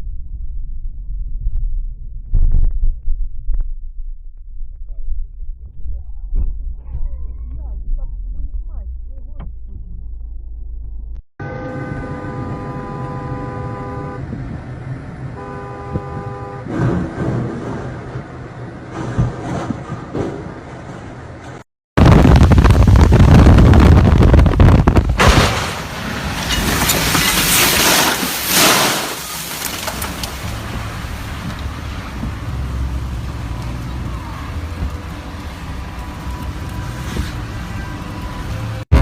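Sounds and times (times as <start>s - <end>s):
vehicle and road noise: 5.7s - 39.0s
wind on microphone: 22.0s - 25.2s
sharp hit: 25.2s - 29.7s
loud hiss: 27.0s - 29.7s.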